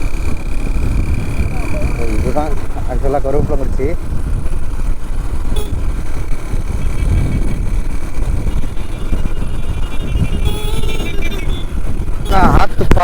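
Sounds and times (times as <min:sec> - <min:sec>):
motorcycle engine running: 0:00.0 - 0:13.0
wind rumbling on microphone: 0:00.0 - 0:13.0.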